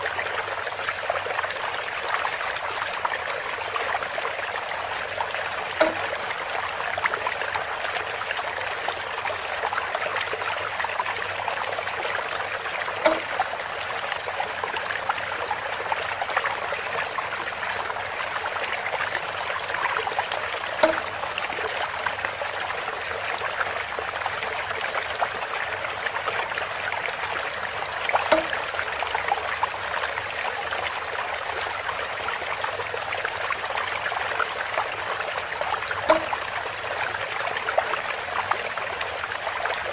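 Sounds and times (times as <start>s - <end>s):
water trickling from fountain: 0.0s - 39.9s
hollow bamboo knock: 5.8s - 6.3s, 13.0s - 13.5s, 20.8s - 21.5s, 28.2s - 28.7s, 36.1s - 36.5s.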